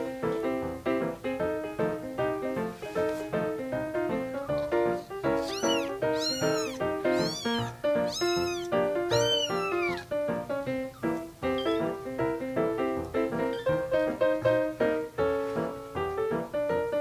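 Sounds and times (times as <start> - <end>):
piano music: 0.0 - 17.0
cat meowing: 5.2 - 10.1, 11.4 - 12.0, 13.3 - 14.1.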